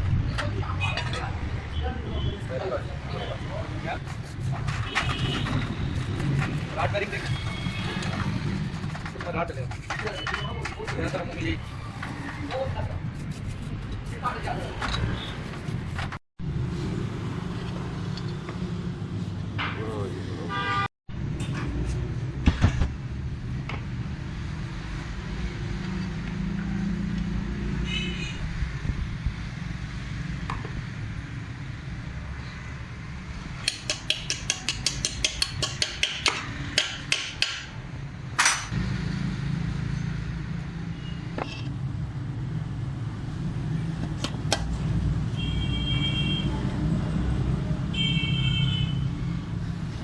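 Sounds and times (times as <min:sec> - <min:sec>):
low traffic rumble: 0:00.0 - 0:50.0.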